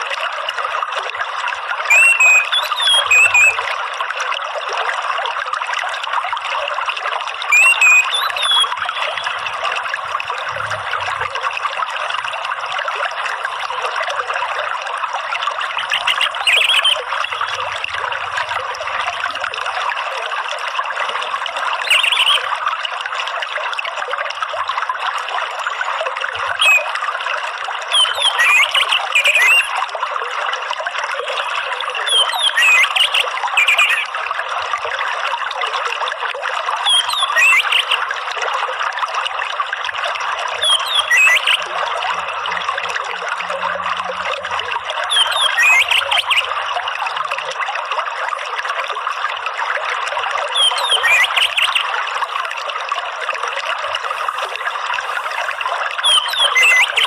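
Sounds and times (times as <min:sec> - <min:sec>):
trickling running water: 0:00.0 - 0:57.0
bird chirping: 0:01.9 - 0:03.6, 0:07.5 - 0:09.4, 0:15.8 - 0:17.6, 0:40.6 - 0:41.6, 0:45.1 - 0:46.5, 0:50.6 - 0:51.8, 0:56.0 - 0:57.0.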